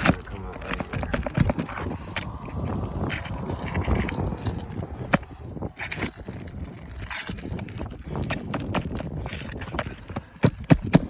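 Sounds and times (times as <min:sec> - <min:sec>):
shingles scraping and tearing: 0:00.0 - 0:11.0
tool clicking against shingles: 0:06.8 - 0:11.0.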